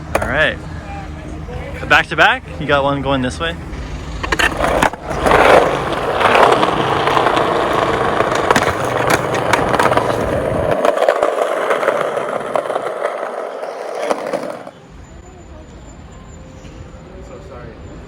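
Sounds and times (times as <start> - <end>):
skateboard clicks and knocks: 0.0 - 0.4, 3.8 - 14.8
skateboard wheels rolling on pavement: 0.0 - 15.2.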